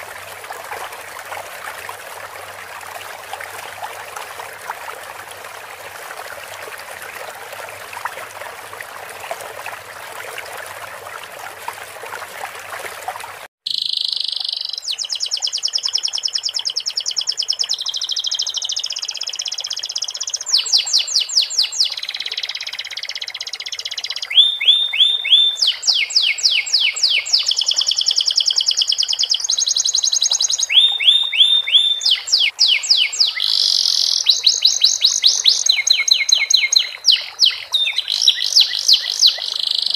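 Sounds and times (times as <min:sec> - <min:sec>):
running water trickling: 0:00.0 - 0:39.9
canary singing trills: 0:13.7 - 0:39.9.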